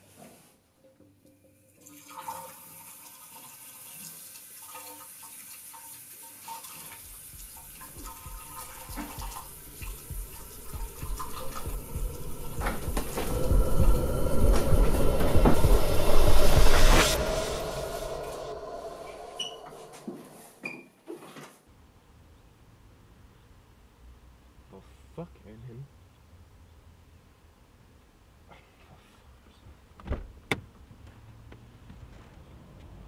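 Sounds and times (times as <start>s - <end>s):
water running into washbasin: 1.8s - 15.8s
low rumble: 7.6s - 20.6s.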